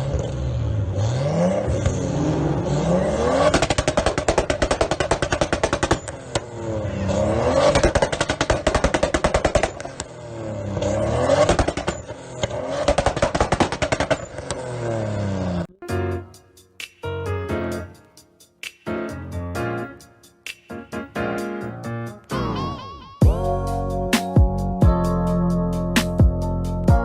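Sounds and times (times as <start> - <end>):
car engine revving hard: 0.0 - 4.7, 6.4 - 8.0, 10.2 - 15.7
engine stuttering on rev limiter: 0.0 - 15.7.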